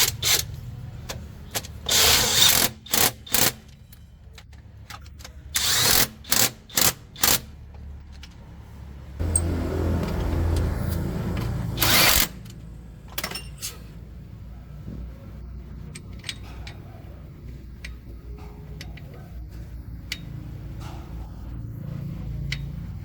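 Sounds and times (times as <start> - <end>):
metallic clinks of tools: 13.1 - 13.9.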